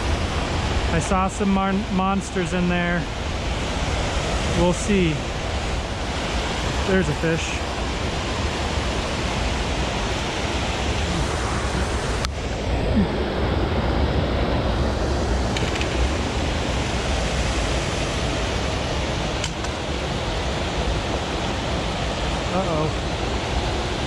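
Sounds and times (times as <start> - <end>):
water rushing over waterfall: 0.0 - 24.0.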